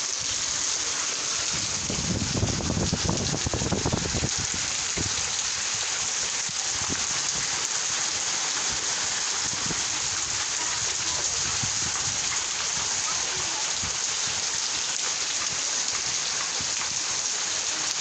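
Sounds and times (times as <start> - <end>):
rain hissing: 0.0 - 18.0.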